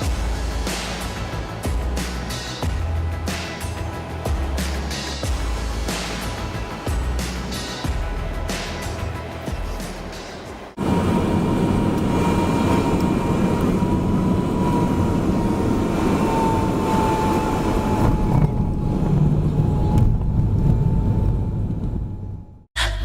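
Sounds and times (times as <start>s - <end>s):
high engine whine: 10.5s - 22.7s
jet engines roaring: 10.7s - 22.2s.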